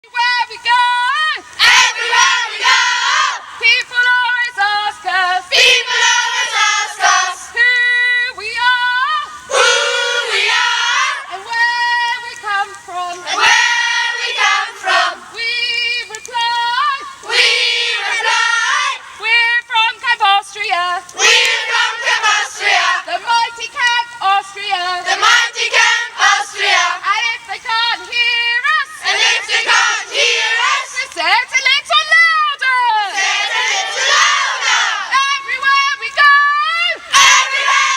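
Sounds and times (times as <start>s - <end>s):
children singing: 1.6s - 3.4s, 4.6s - 7.8s, 8.6s - 19.4s, 20.7s - 31.4s, 33.0s - 36.2s, 36.8s - 37.9s
children shouting: 33.1s - 37.9s.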